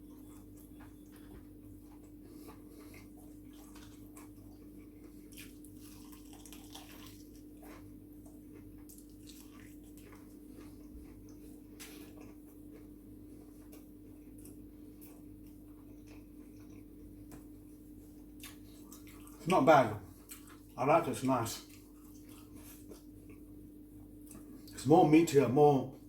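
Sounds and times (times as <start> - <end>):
person chewing fried chicken: 0.0 - 19.5, 20.1 - 20.8, 21.5 - 24.8
steady low hum: 0.0 - 26.0
wet mouth clicks and smacks: 20.2 - 20.6.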